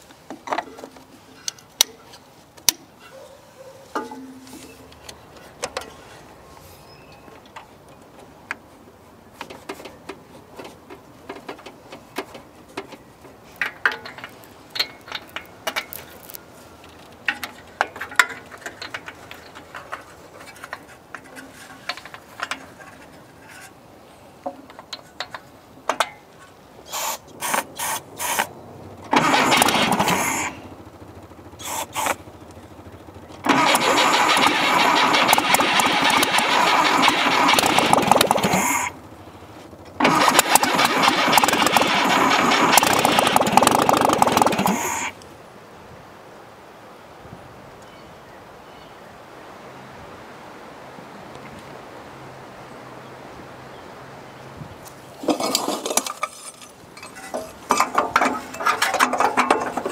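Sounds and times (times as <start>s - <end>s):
small clicks and clinks of tools: 9.4s - 23.7s
car engine cranking: 27.4s - 39.1s, 39.9s - 45.2s, 55.2s - 59.9s.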